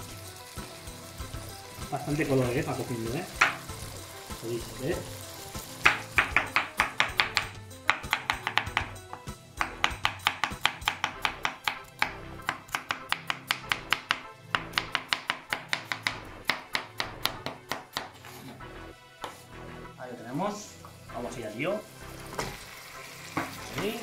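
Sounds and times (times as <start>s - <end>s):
knife chopping on cutting board: 5.8s - 18.6s.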